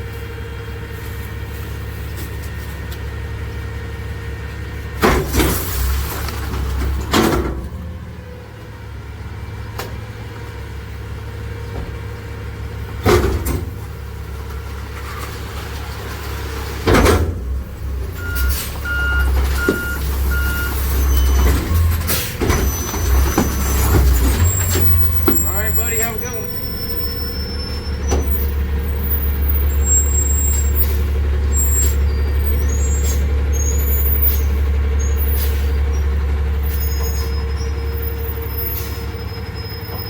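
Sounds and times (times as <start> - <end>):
garbage truck diesel engine: 0.0 - 40.0
reverse alarm beeping: 18.2 - 30.8.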